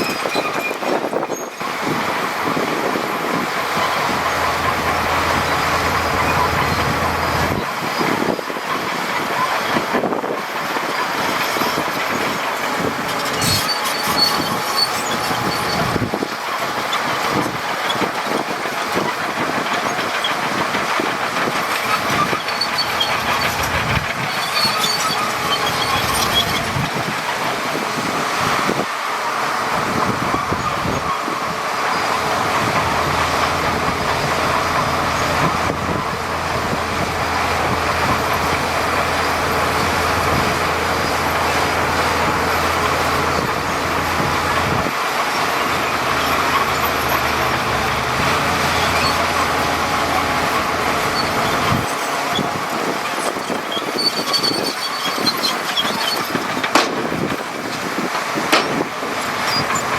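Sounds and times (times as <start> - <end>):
diesel engine running: 0.0 - 59.9
machinery clattering rumble: 0.0 - 59.9
sharp knocks: 56.7 - 57.3.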